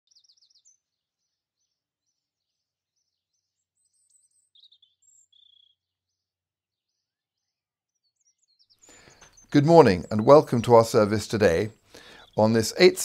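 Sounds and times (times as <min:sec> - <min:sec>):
soft bird chirps: 0:00.0 - 0:10.2.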